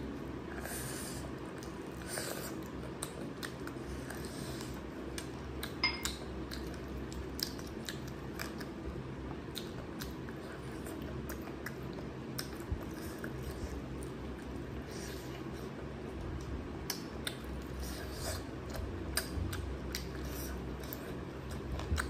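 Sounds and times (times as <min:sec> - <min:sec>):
chewing and mouth smacks: 0:01.5 - 0:22.0.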